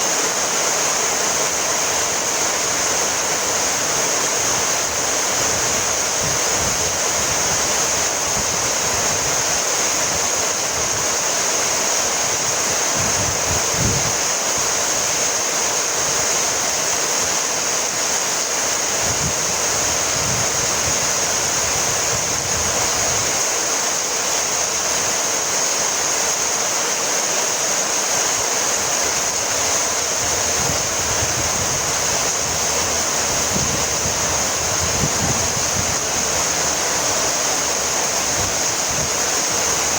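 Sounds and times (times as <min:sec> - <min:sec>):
heavy rain falling: 0:00.0 - 0:39.9
low rumbles: 0:29.4 - 0:39.1.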